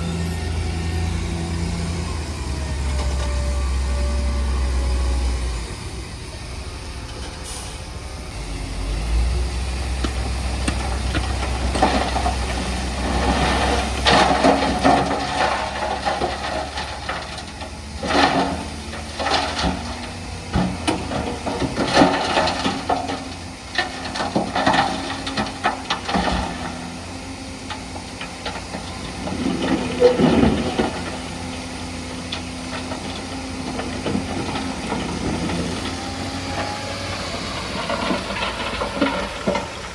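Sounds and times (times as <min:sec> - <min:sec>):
heavy diesel machinery engine drone: 0:00.0 - 0:39.9
rattling and clanking: 0:10.0 - 0:39.9.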